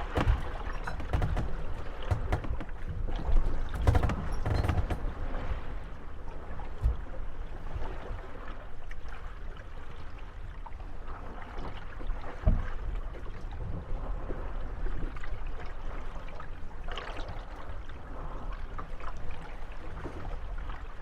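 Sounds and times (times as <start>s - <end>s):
dull knock: 0.0s - 3.0s, 3.6s - 5.2s
boat hulls bumping and creaking: 0.0s - 7.7s, 12.3s - 13.4s
water lapping: 0.0s - 21.0s.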